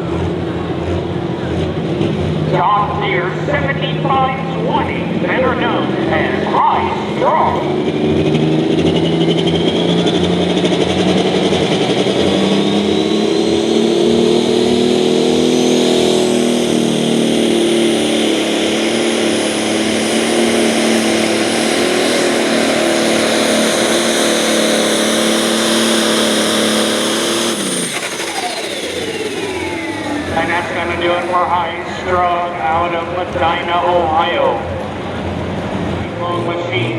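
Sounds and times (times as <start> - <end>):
diesel tractor engine whining: 0.0 - 36.9.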